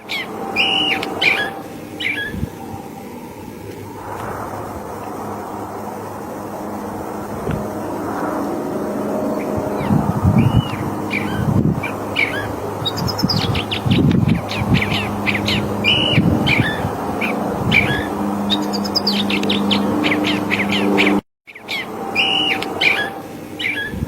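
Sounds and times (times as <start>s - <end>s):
bird singing varied phrases: 0.0s - 2.6s, 9.4s - 24.0s
low rumble and hum: 0.0s - 21.2s.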